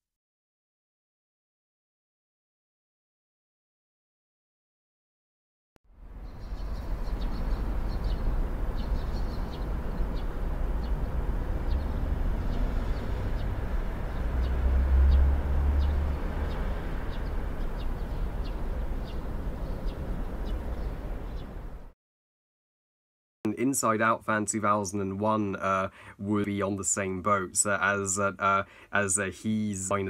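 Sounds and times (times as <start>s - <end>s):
low outdoor rumble: 5.9s - 21.9s
birds chirping: 6.0s - 21.9s.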